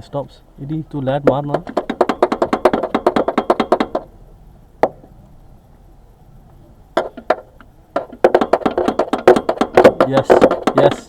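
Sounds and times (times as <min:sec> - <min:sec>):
fast run of sharp knocks: 0:01.2 - 0:04.1, 0:04.8 - 0:05.1, 0:07.0 - 0:11.0.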